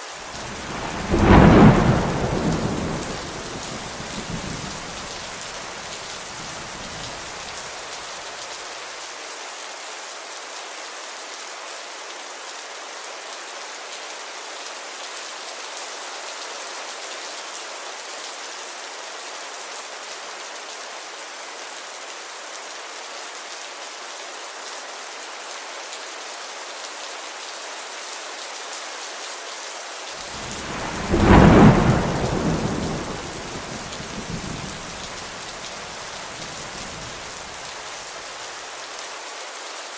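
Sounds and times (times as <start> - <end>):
steady rain falling: 0.0 - 39.9
loud thunder clap: 0.3 - 7.3, 30.3 - 37.6
thunder rumbling: 0.3 - 7.5, 30.3 - 37.8.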